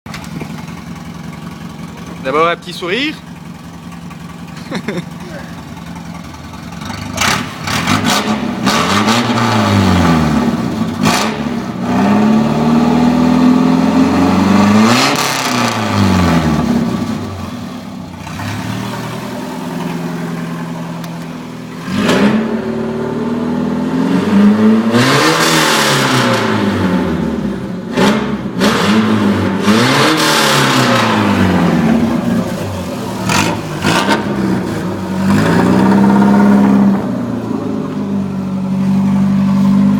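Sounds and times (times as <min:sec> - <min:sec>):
exhaust cracks: 0:00.1 - 0:12.1, 0:27.9 - 0:39.9
car engine revving: 0:00.2 - 0:39.9.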